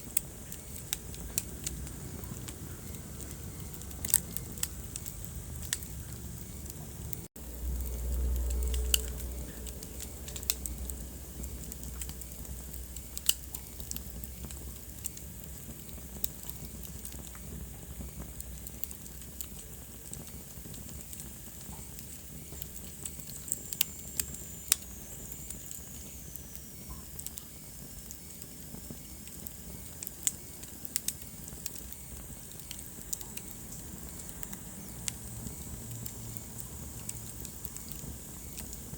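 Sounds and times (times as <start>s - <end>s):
wood fire crackling: 0.0s - 38.9s
low rumble: 1.0s - 13.2s.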